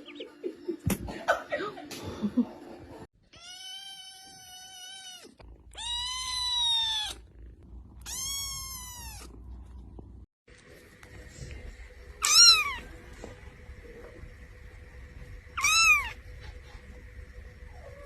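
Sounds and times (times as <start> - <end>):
cat meowing: 3.2 - 7.3, 8.0 - 9.4, 12.2 - 12.8, 15.6 - 16.2.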